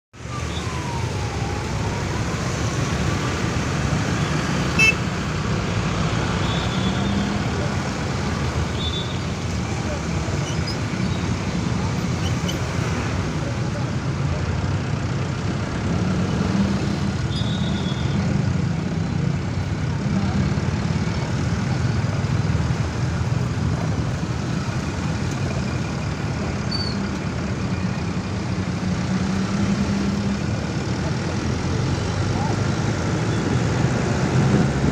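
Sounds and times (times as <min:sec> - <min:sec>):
road traffic rumble: 0:00.2 - 0:34.9.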